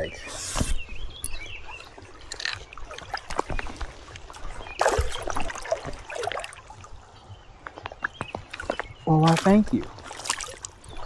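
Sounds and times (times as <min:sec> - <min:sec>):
water splashing and trickling: 0:00.0 - 0:11.0
loud fish splash: 0:04.8 - 0:06.6, 0:09.2 - 0:10.9.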